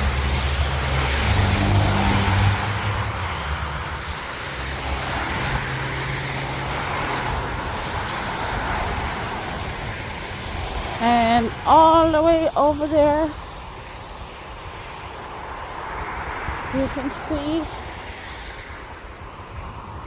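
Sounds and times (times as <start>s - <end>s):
tyre hiss on wet road: 0.0s - 11.6s, 13.3s - 20.0s.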